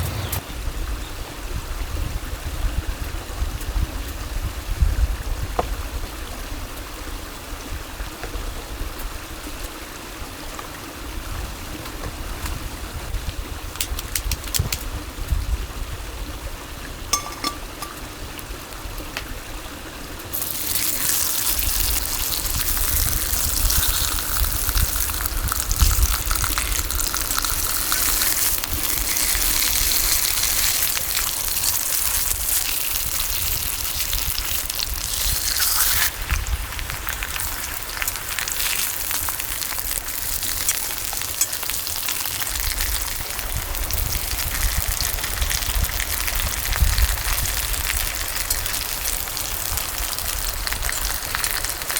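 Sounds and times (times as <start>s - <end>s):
running water rushing: 19.3s - 51.9s.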